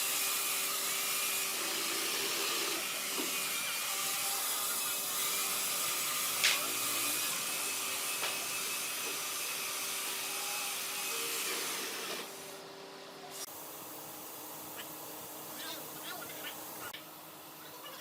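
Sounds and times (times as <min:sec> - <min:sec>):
power tool on wood: 0:00.0 - 0:12.6.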